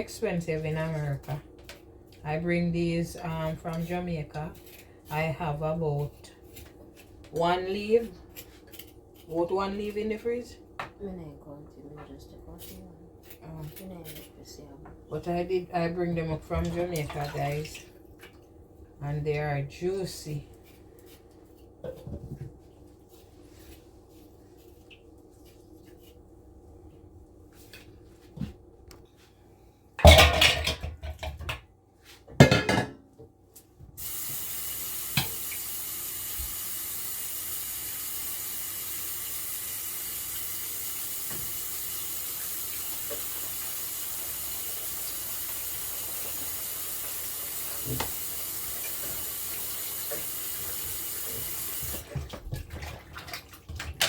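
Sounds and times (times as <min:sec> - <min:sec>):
kitchen tap running: 0:34.0 - 0:54.0.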